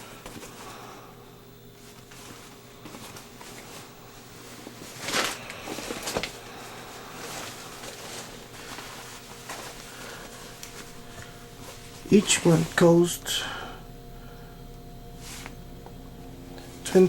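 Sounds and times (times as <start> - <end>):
fabric rustling: 0.0 - 14.3, 15.1 - 17.0
fabric scuffing: 1.7 - 13.1, 15.2 - 15.6.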